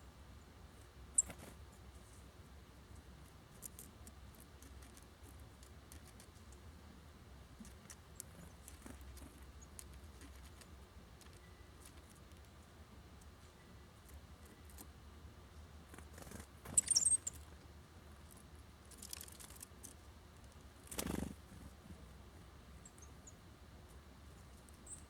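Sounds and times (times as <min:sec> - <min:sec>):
low steady hum: 0:00.0 - 0:25.0
songbird chip notes: 0:16.7 - 0:17.4.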